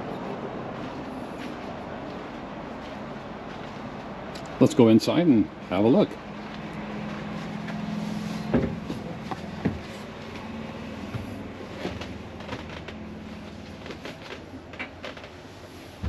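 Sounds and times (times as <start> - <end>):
footsteps on entry steps: 0.0 - 4.6, 6.2 - 15.4
steady low hum: 0.0 - 16.0
heavy knocks: 8.5 - 9.9.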